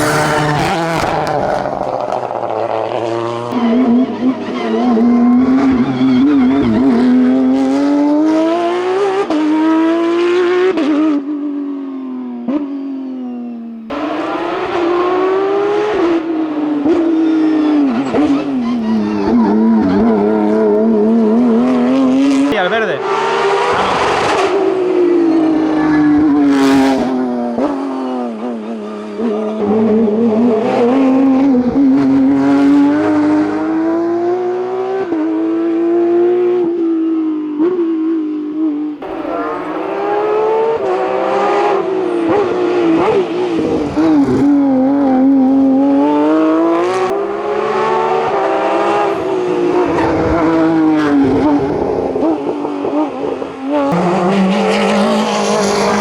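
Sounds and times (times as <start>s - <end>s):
racing car engine revving: 13.9s - 56.0s.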